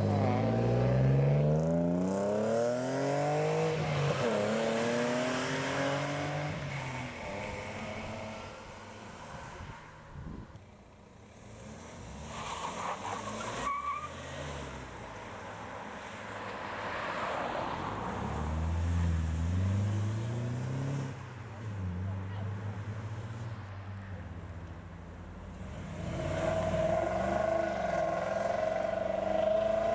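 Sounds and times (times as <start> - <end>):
cars accelerating away: 0.0 - 9.8, 17.4 - 22.1, 25.4 - 29.9.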